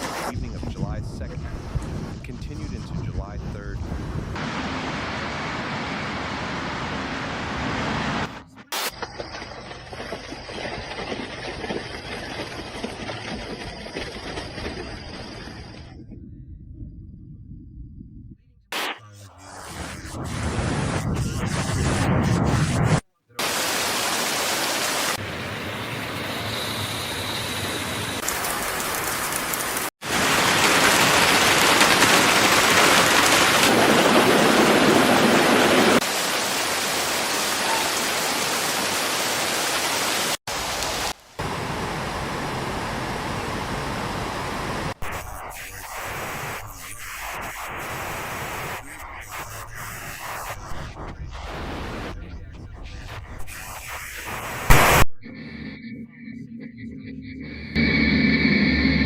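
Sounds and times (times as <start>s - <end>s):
rushing water: 4.4s - 8.9s, 23.4s - 45.0s.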